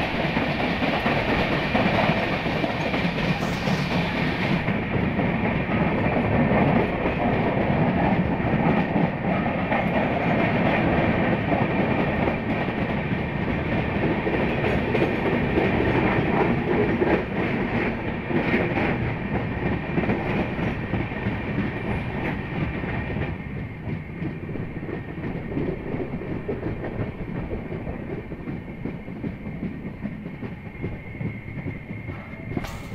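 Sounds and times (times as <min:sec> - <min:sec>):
train high whine: 0:00.0 - 0:32.9
train wheels rumbling on track: 0:00.0 - 0:32.9.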